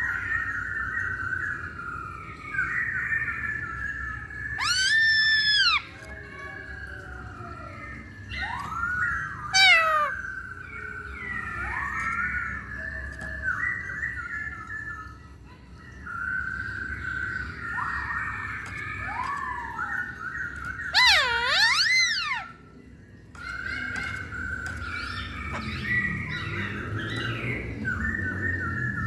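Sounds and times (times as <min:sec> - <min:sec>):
bird singing whistled notes: 0:00.0 - 0:29.0.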